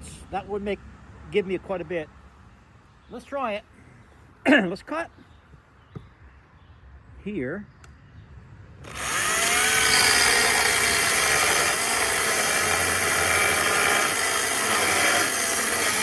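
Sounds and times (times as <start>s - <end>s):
electric chainsaw cutting wood: 8.8s - 16.0s.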